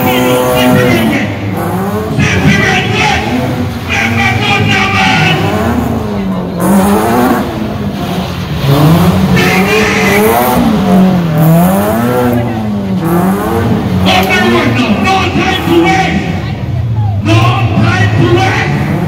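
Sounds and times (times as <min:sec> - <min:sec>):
car engine at high revs: 0:00.0 - 0:19.0.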